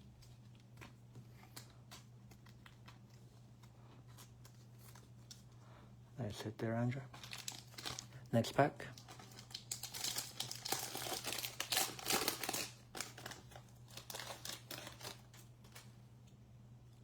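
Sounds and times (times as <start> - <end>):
plastic wrapper tearing and crinkling: 7.1 - 16.0.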